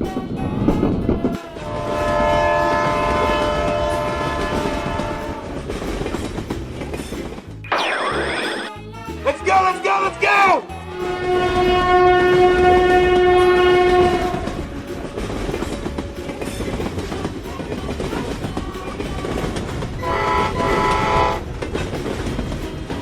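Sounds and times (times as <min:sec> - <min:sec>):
train rumbling and clattering: 0:00.0 - 0:07.6, 0:10.9 - 0:23.0
train horn: 0:01.5 - 0:05.8, 0:10.9 - 0:15.8, 0:19.2 - 0:21.6.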